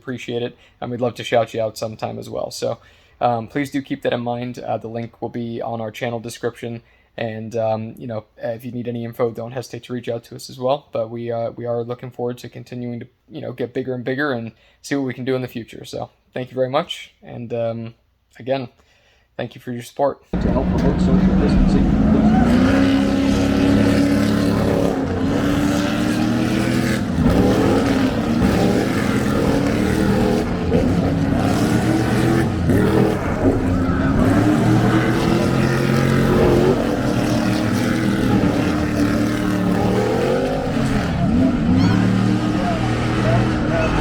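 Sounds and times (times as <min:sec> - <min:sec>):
race car engines passing: 0:20.4 - 0:44.0.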